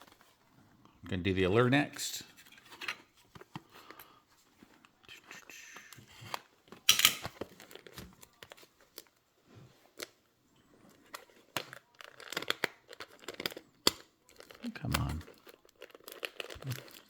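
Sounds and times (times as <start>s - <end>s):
plastic crinkling: 2.2s - 17.0s
plastic wrap ripping: 11.0s - 17.0s.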